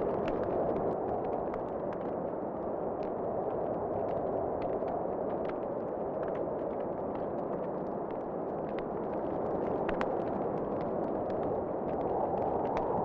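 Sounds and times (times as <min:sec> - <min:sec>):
rushing wind: 0:09.3 - 0:13.0.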